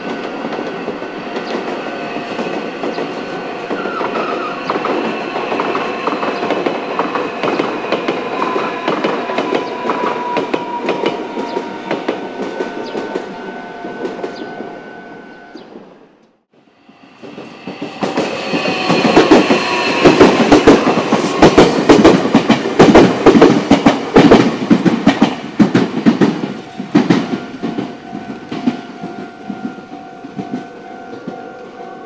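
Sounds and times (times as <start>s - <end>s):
train wheels clattering over joints: 0.0s - 13.3s, 17.2s - 31.8s
level-crossing warning bell: 0.0s - 16.0s, 26.5s - 32.0s.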